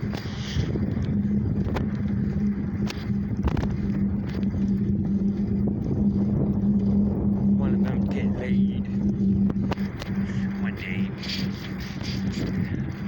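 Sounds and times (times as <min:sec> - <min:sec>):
bicycle rolling noise: 0:00.0 - 0:13.0
sharp clicks and rattles: 0:00.0 - 0:13.0
wind on microphone: 0:00.0 - 0:13.0.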